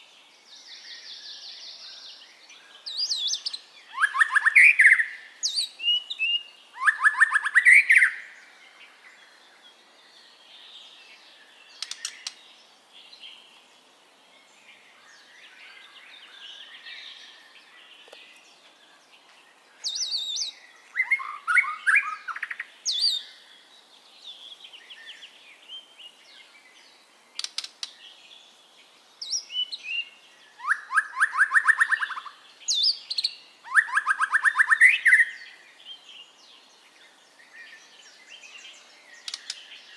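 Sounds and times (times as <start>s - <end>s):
soft bird twittering: 0.0s - 13.5s, 14.4s - 28.6s, 29.2s - 39.9s
bird singing loud whistled phrases: 0.7s - 8.4s, 19.8s - 23.4s, 29.2s - 35.6s.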